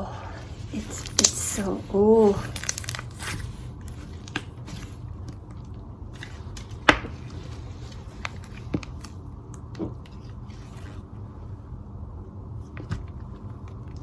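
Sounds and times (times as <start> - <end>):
hands squishing slime: 0.6 - 4.8.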